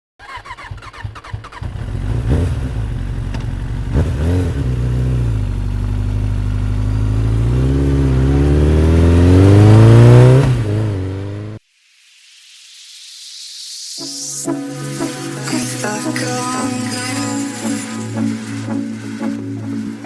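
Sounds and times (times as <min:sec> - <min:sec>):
engine starting and revving: 0:00.2 - 0:11.6.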